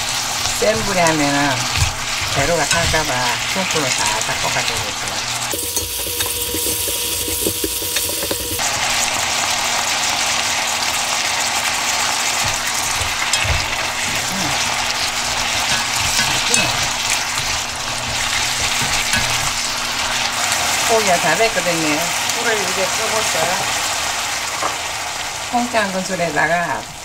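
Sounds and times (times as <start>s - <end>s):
meat and vegetables sizzling in a pan: 0.0s - 27.0s
utensils knocking against a pan: 0.7s - 4.8s, 5.5s - 8.6s, 12.4s - 20.2s.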